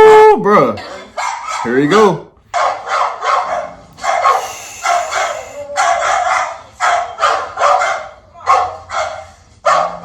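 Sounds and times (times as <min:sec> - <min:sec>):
dogs barking: 0:01.0 - 0:01.8, 0:02.5 - 0:10.0.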